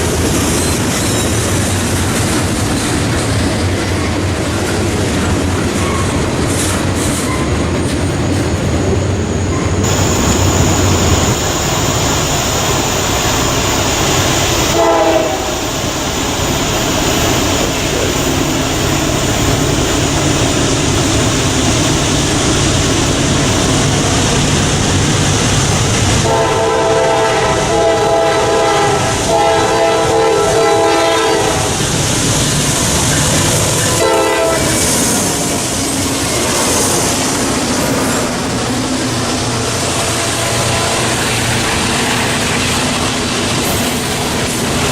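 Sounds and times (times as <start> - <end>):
train wheels on rails: 0.0 - 44.9
locomotive horn blasts: 9.8 - 16.3, 26.2 - 31.8, 33.9 - 34.8.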